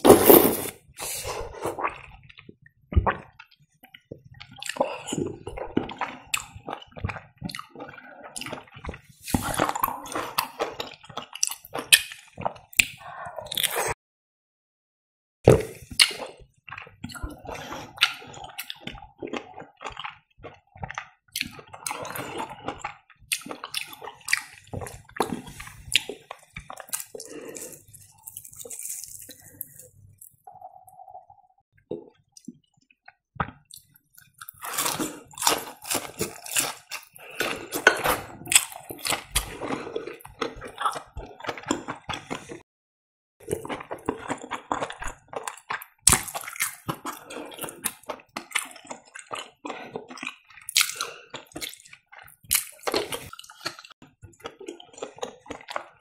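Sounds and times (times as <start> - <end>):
wet chewing and smacking: 1.8 - 13.0, 15.9 - 30.8, 43.4 - 56.0
crisp crunches of crust: 26.8 - 29.9.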